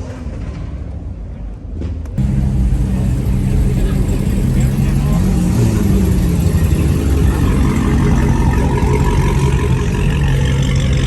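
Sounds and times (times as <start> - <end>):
car engine idling: 2.2 - 11.0.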